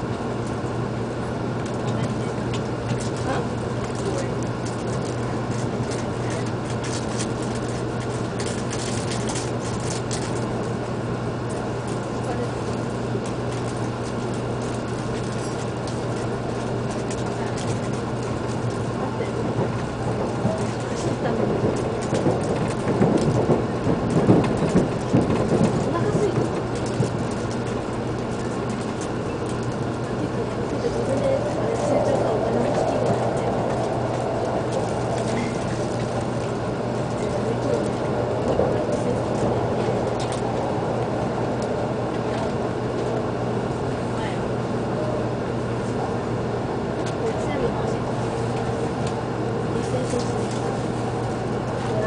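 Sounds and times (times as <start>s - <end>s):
train cabin hum and rushing: 0.0s - 52.0s
low hum: 26.8s - 45.5s.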